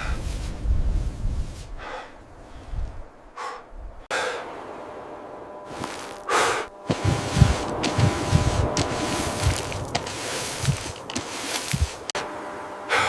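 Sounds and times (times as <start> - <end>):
person breathing hard: 0.0 - 0.4, 1.6 - 4.5, 6.2 - 12.1
low thuds: 6.8 - 12.2.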